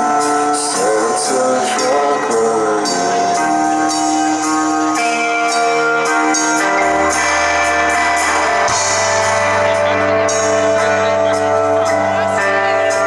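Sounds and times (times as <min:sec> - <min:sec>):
sustained guitar chords: 0:00.0 - 0:13.0.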